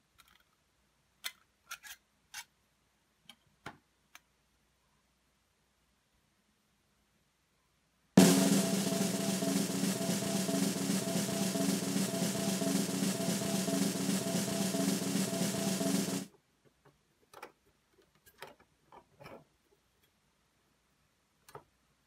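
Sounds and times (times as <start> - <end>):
drum roll: 8.2 - 16.3.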